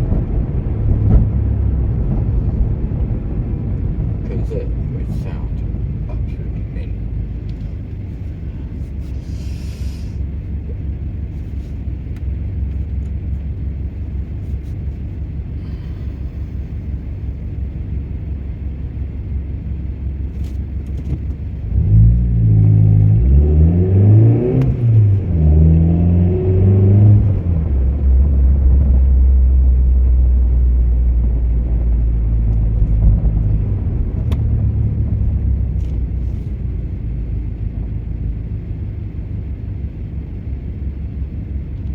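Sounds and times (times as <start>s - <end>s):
car engine droning: 0.0s - 41.9s.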